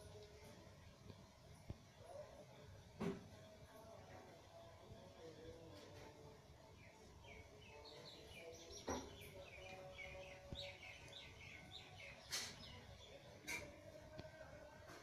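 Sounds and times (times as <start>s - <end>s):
faint bird chirping: 6.6s - 14.0s.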